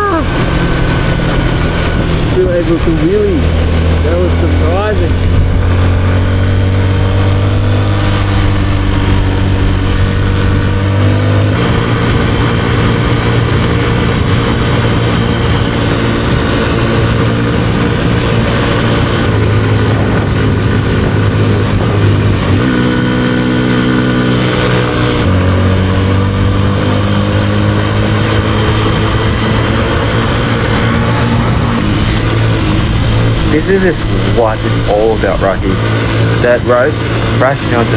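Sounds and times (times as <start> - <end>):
dirt bike engine running: 0.0 - 37.9.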